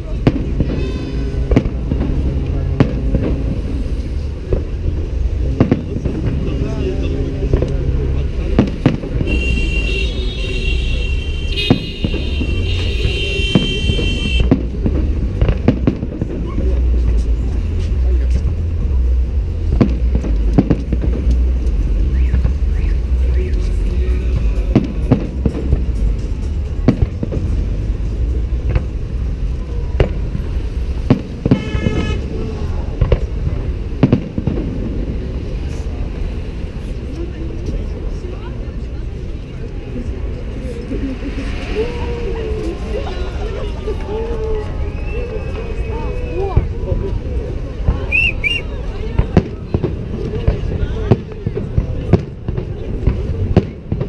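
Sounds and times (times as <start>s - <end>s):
low rumble: 0.0s - 9.3s
firework bangs: 0.0s - 23.4s, 24.2s - 37.5s, 45.0s - 54.0s
high firework whistle: 9.2s - 14.5s, 48.1s - 48.7s
shrill whistle-like tone: 44.8s - 46.6s, 48.1s - 48.7s.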